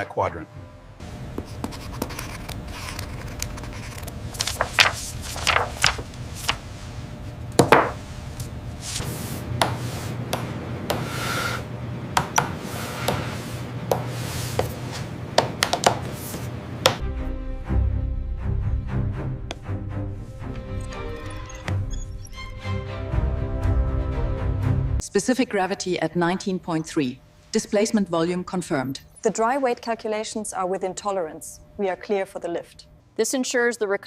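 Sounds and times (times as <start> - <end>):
low hum: 0.4 - 11.0
taps and knocks: 15.4 - 16.0, 16.8 - 17.0.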